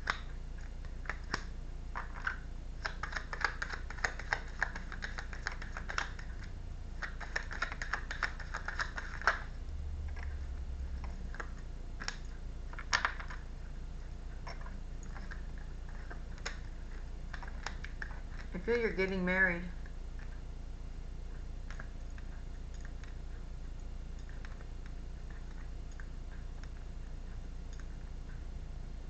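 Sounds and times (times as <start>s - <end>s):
cards clicking and tapping: 1.1s - 6.3s, 7.0s - 9.5s.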